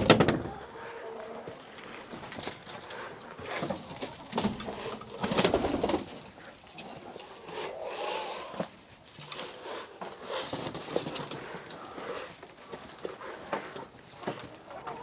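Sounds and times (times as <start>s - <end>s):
chickens clucking softly: 0.3s - 15.0s.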